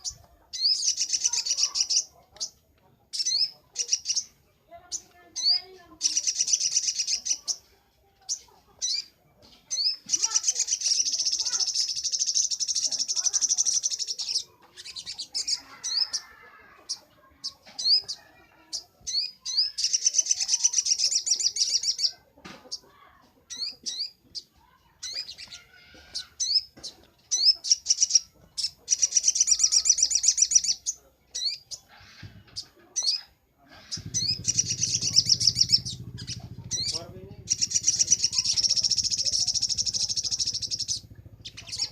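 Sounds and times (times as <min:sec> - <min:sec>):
bird singing high trills: 0:33.8 - 0:41.9
sharp rising bird chirps: 0:33.8 - 0:41.9.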